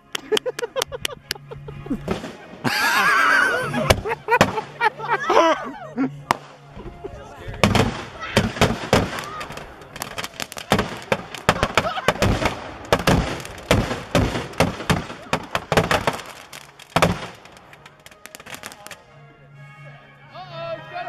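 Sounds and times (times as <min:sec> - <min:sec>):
fireworks bangs and crackles: 0:02.0 - 0:02.7, 0:03.8 - 0:04.9, 0:07.6 - 0:19.0.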